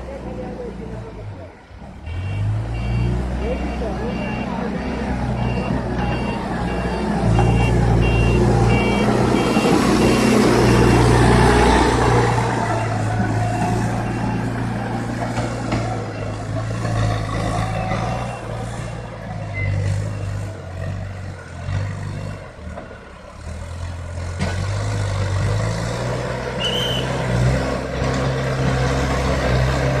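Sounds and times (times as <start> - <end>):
diesel engine running under load: 0.0 - 30.0
reversing alarm beeping: 2.1 - 11.1, 11.8 - 20.5.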